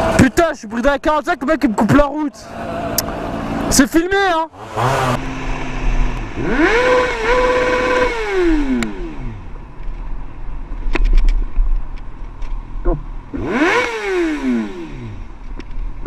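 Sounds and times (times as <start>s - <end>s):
moped engine revving: 2.4s - 9.6s, 12.9s - 15.4s.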